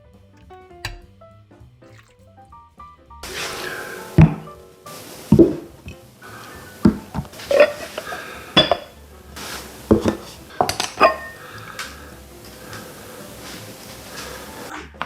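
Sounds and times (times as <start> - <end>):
dishes and cutlery clinking: 3.2 - 4.5, 5.3 - 9.0, 9.9 - 12.0.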